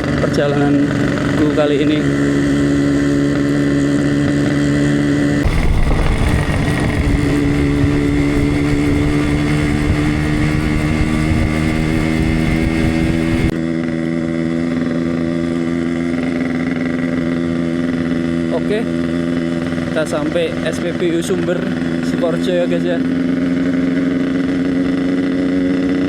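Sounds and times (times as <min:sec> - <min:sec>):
two-stroke motorcycle engine running: 0:00.0 - 0:26.0.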